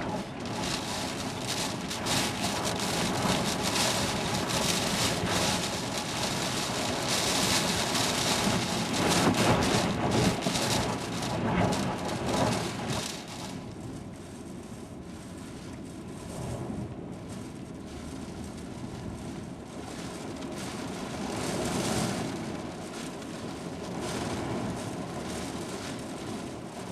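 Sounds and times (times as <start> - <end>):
storm wind gusting: 0.0 - 13.6
heavy rain: 0.0 - 26.9.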